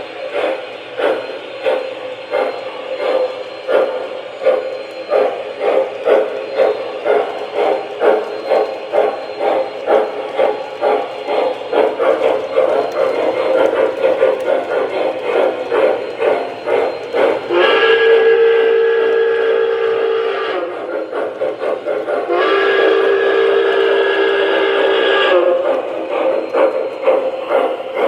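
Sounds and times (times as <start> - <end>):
steam locomotive exhaust chuffing: 0.0 - 28.0
steam whistle blasts: 15.4 - 21.1, 22.2 - 26.4.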